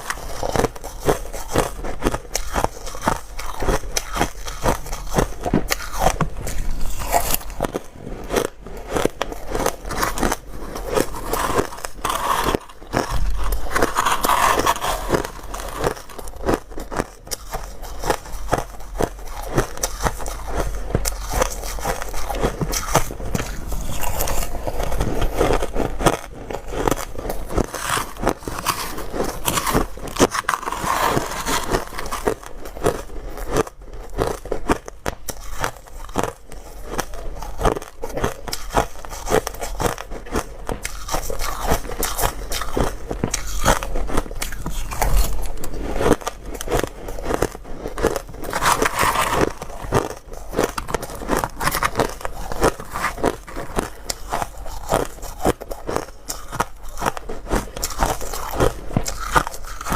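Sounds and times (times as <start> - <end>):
chewing crunching ice: 0.0 - 59.9.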